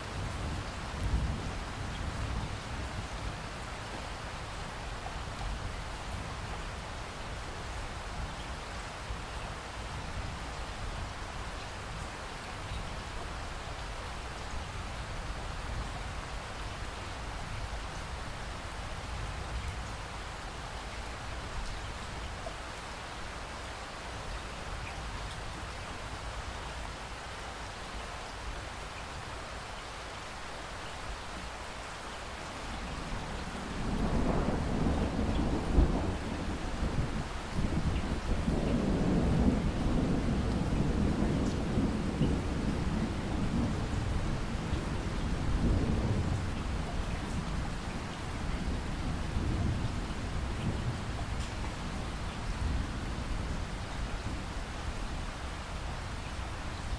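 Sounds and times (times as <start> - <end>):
steady rain falling: 0.0 - 56.9
thunder rumbling: 32.8 - 54.5.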